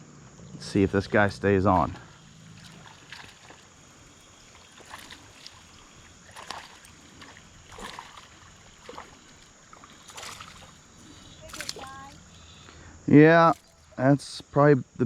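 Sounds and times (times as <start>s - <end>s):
creek rushing: 1.7s - 12.3s
fish splashing in water: 2.0s - 12.6s, 13.5s - 14.0s.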